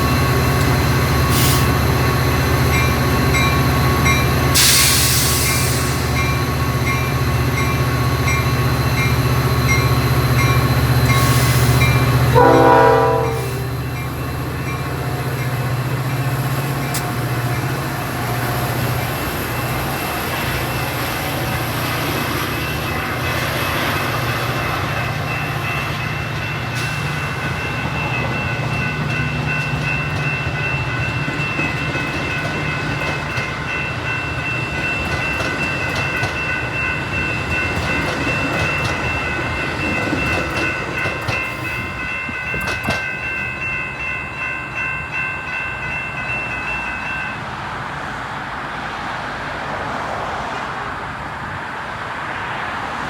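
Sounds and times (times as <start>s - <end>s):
locomotive bell ringing: 0.0s - 47.7s
diesel locomotive rumbling: 0.0s - 53.0s
rail noise: 0.0s - 53.0s
train horn blast: 11.2s - 13.8s.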